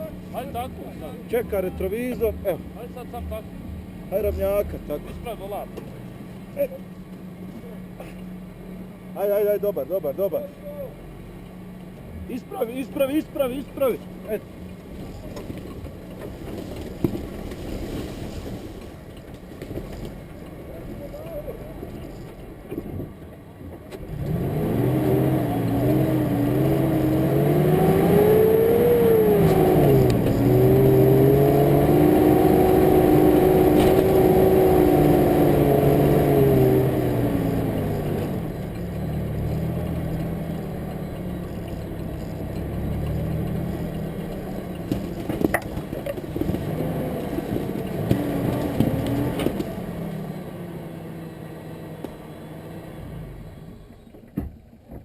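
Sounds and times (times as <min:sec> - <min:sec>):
car engine revving: 0:23.9 - 0:54.0.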